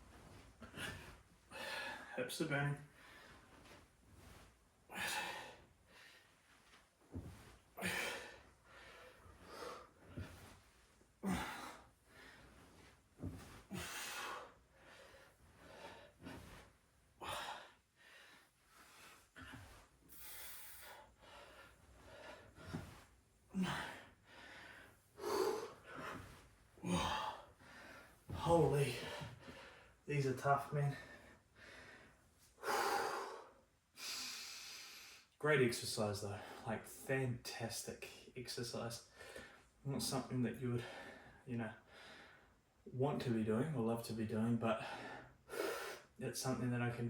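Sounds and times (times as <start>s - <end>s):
man breathing hard: 17.2s - 28.2s, 31.0s - 35.3s, 40.8s - 42.6s.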